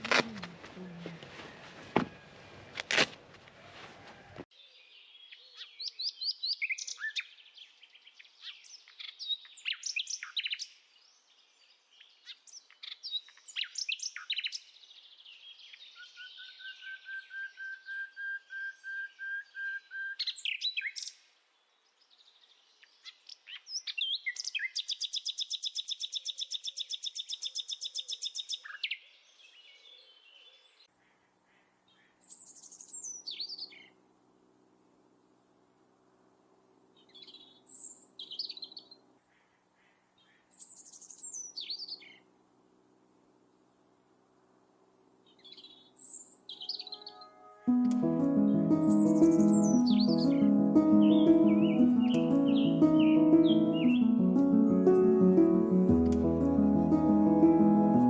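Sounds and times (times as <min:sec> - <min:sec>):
songbirds chirping and whistling: 0:04.6 - 0:21.3, 0:40.2 - 0:42.2, 0:45.3 - 0:47.5, 0:48.4 - 0:54.2.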